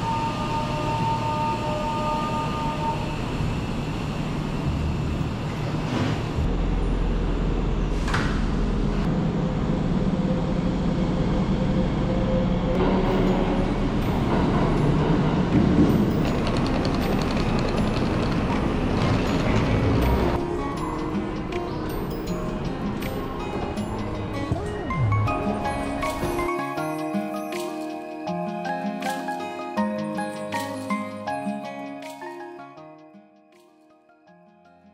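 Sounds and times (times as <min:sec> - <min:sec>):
low hum of train equipment: 0:00.0 - 0:24.5.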